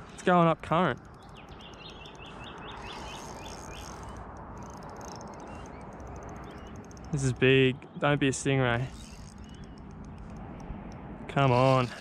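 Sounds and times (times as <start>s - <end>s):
outdoor background noise: 0.0s - 12.0s
bird chirping: 1.0s - 10.4s.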